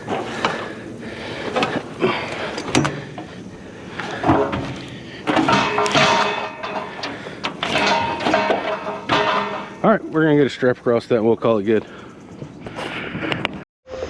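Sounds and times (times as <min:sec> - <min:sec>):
scrap items knocking and scraping: 0:04.0 - 0:09.9.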